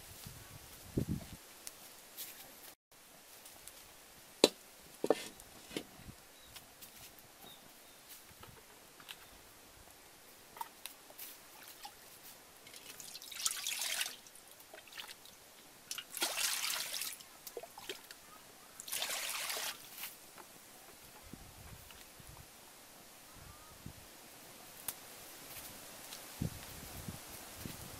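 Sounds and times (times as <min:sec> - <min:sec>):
water pouring into wok: 0:12.7 - 0:15.1, 0:16.0 - 0:17.2, 0:18.8 - 0:19.8.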